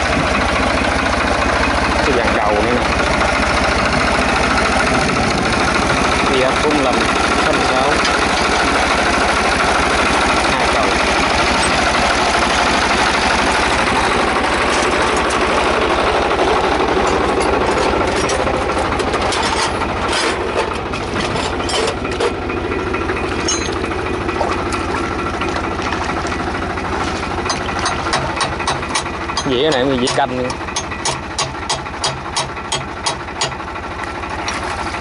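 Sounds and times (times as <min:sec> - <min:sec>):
tractor diesel engine running: 0:00.0 - 0:35.0
sharp clicks and knocks: 0:16.9 - 0:26.4, 0:27.1 - 0:33.6.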